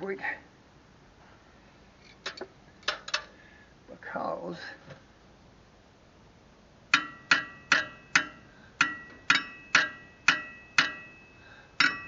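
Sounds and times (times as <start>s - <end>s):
hammer striking metal: 6.9s - 12.0s.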